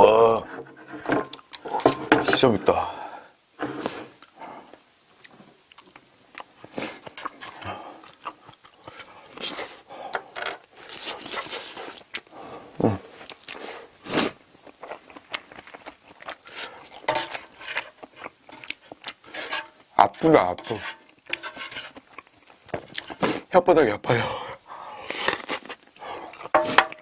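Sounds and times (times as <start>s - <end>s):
person chewing food: 1.3s - 2.1s, 3.7s - 20.0s, 20.7s - 23.5s, 24.3s - 27.0s.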